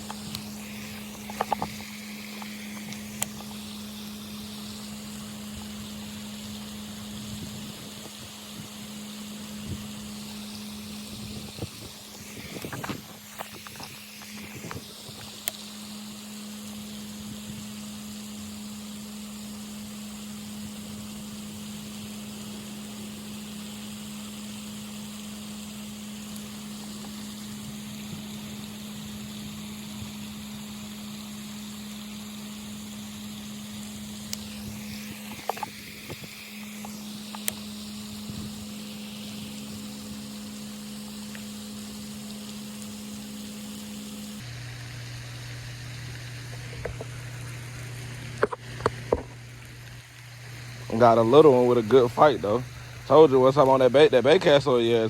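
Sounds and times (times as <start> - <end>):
low mechanical hum: 0.0 - 55.0
outdoor background hiss: 0.0 - 55.0.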